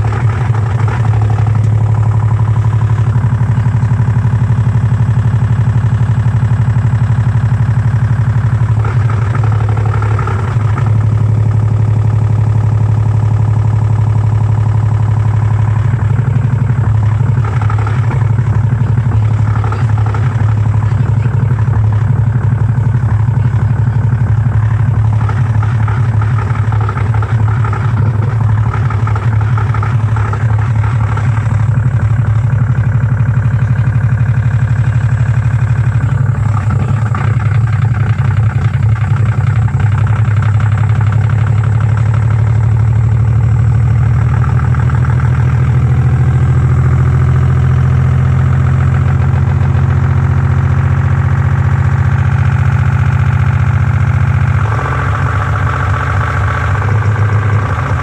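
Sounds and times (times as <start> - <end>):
rattling clatter: 0.0 - 46.3.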